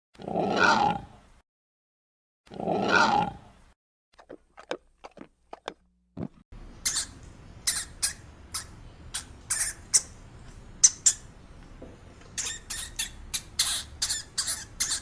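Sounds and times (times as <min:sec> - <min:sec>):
large animal roaring: 0:00.2 - 0:01.1, 0:02.5 - 0:03.4.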